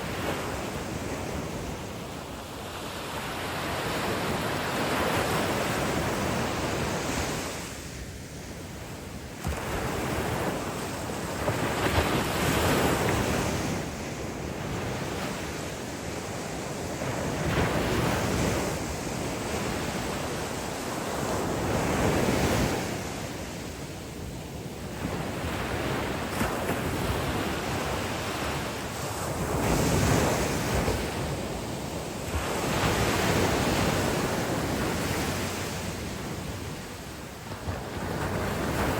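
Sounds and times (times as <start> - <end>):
ocean surf breaking: 24.9 - 38.9.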